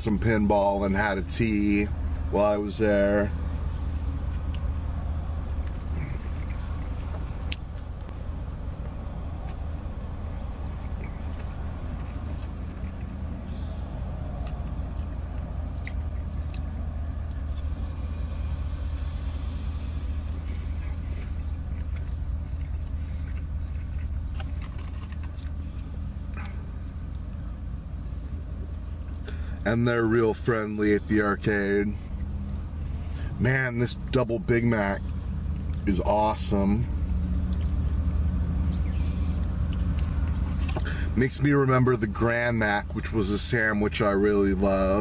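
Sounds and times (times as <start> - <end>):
low car cabin hum: 0.0 - 45.0
person chewing food: 3.4 - 27.6, 37.0 - 41.0.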